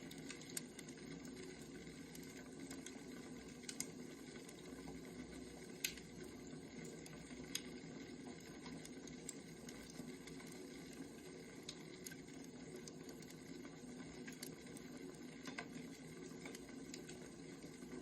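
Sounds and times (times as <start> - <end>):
firewood crackles and pops: 0.0 - 4.9, 5.6 - 7.8, 8.4 - 18.0.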